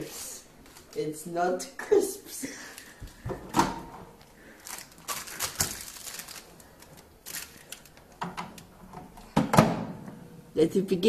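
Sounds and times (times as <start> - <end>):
crisp packet rustling: 0.0 - 1.3, 2.4 - 3.2, 4.2 - 8.7.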